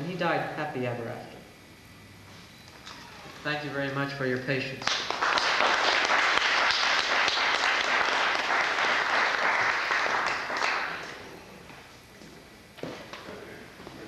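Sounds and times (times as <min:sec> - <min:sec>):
audience applauding: 0:04.8 - 0:11.4.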